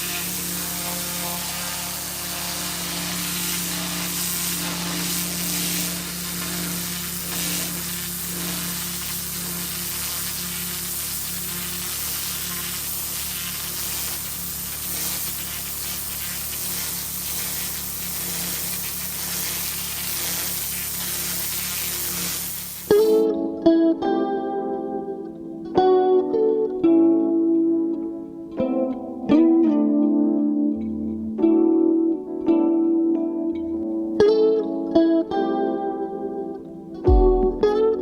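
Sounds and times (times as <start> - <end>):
pressure washer hum: 0.0 - 23.2
water jet spraying onto paving: 0.0 - 23.2.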